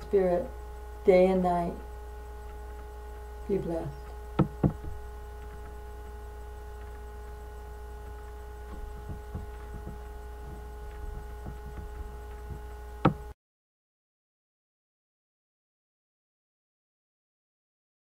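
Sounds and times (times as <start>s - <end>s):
faint whining tones: 0.0s - 13.3s
electrical mains hum: 0.0s - 13.4s.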